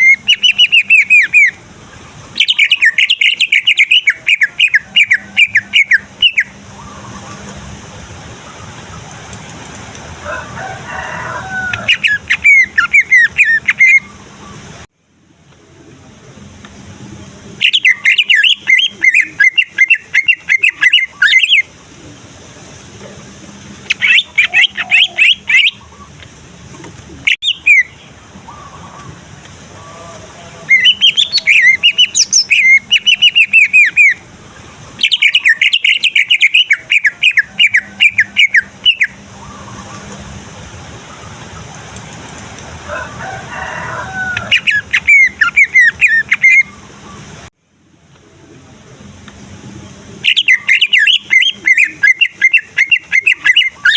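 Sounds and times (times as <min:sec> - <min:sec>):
bird singing rapid high notes: 0:00.0 - 0:01.6, 0:02.4 - 0:07.1, 0:17.6 - 0:21.7, 0:50.2 - 0:53.9.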